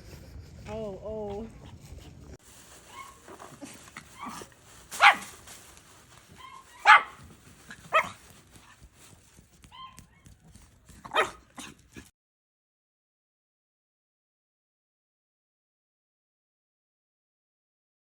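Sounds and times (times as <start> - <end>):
dog barking: 2.9 - 3.2, 4.2 - 5.4, 6.4 - 8.8, 9.7 - 10.2, 11.0 - 12.0.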